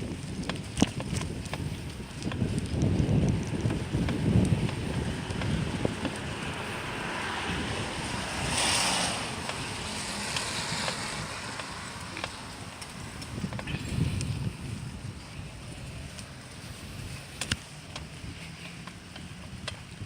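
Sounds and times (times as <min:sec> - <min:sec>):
rain hiss: 0:00.0 - 0:20.0
wind buffeting microphone: 0:00.0 - 0:20.0.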